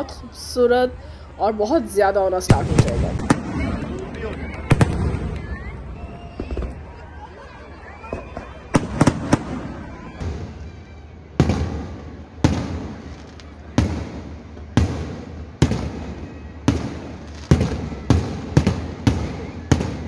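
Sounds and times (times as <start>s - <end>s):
firework shells bursting: 11.4s - 20.0s.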